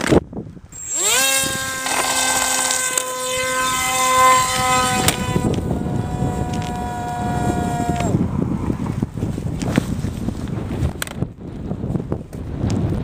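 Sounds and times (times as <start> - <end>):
model plane motor whine: 0.7 - 8.2.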